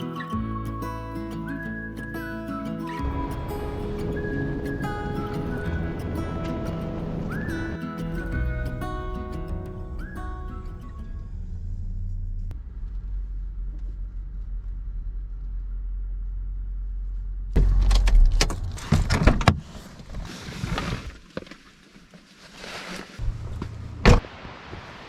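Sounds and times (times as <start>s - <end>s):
car rumbling: 2.8s - 19.8s, 23.2s - 24.6s
rustling: 13.6s - 25.0s.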